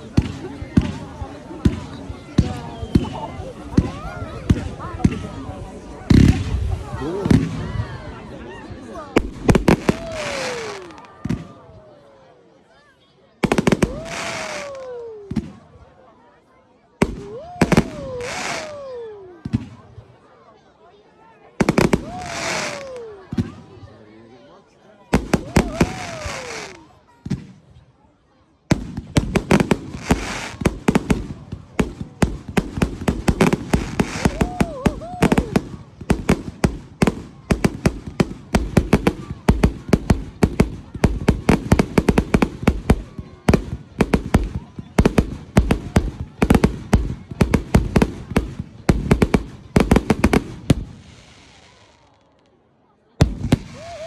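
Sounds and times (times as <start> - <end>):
fireworks bangs and crackles: 0.0 - 11.8, 13.4 - 15.9, 17.0 - 20.1, 21.6 - 23.9, 25.1 - 27.8, 28.7 - 52.5, 53.2 - 54.0.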